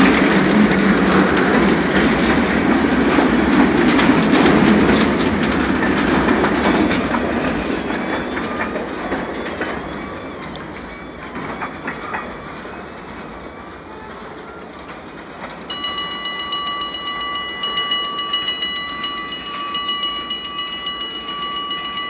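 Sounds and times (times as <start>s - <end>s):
train wheels clacking over rails: 0.0s - 13.4s
pulsing high-pitched ringing tone: 15.7s - 22.0s.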